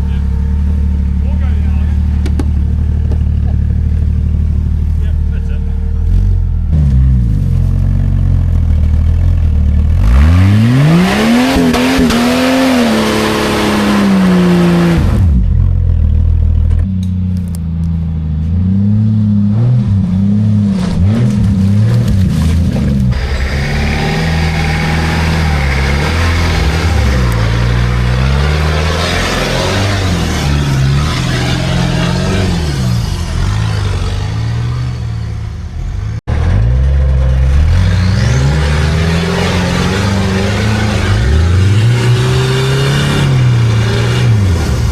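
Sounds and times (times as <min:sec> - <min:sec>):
car engine revving hard: 0:09.9 - 0:15.5, 0:23.1 - 0:36.3, 0:37.4 - 0:44.9.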